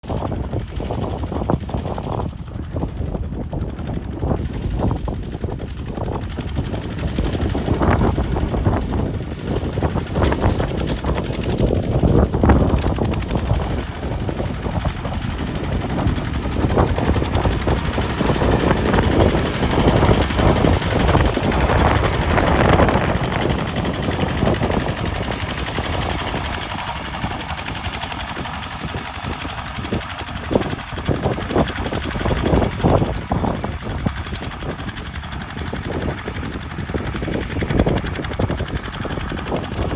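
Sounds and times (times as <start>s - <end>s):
diesel tractor engine knocking: 5.7s - 39.9s.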